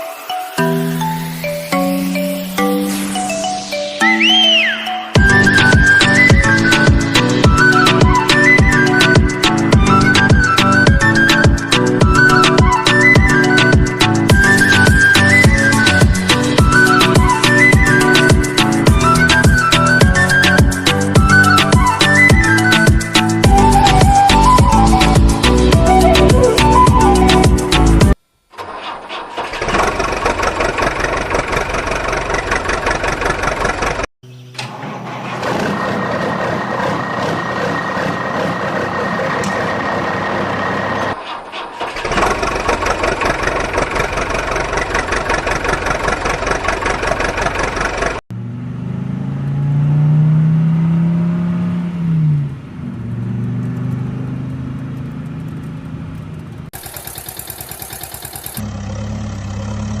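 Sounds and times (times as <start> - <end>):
vehicle engines running: 28.6 - 60.0
engine revving: 28.8 - 60.0.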